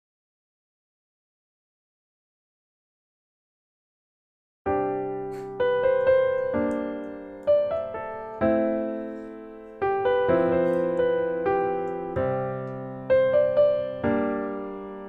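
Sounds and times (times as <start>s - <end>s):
slow gentle piano piece: 4.7s - 15.0s.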